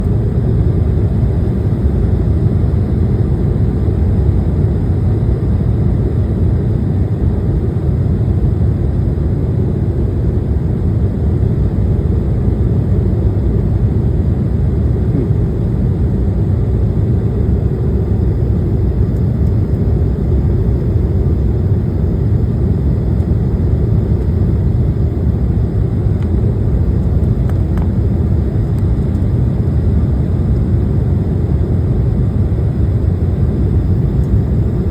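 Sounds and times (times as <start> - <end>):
airliner cabin engine rumble: 0.0 - 34.9.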